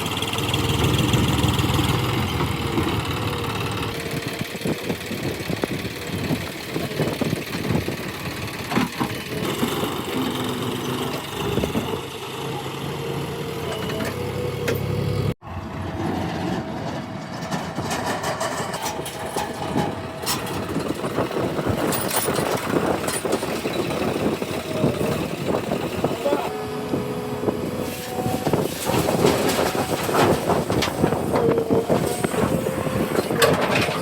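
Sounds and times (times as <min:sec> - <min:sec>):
diesel engine running: 0:00.0 - 0:34.0
knocks and clatter: 0:28.6 - 0:34.0.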